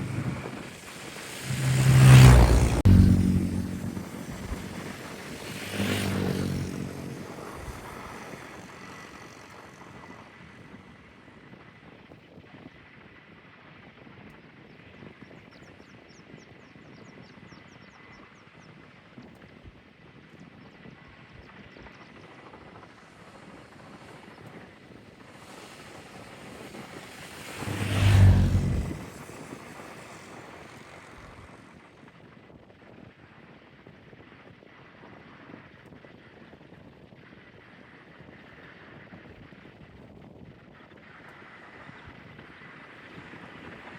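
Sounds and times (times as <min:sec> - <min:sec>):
wind-like hiss: 0:00.0 - 0:02.9, 0:22.2 - 0:32.0
aircraft engine passing: 0:00.0 - 0:11.2, 0:22.8 - 0:32.0.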